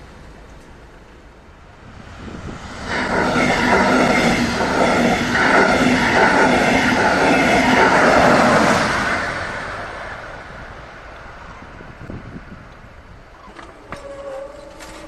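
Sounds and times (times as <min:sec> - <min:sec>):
train passing: 0:00.0 - 0:15.0
wheel rumble: 0:13.2 - 0:15.0.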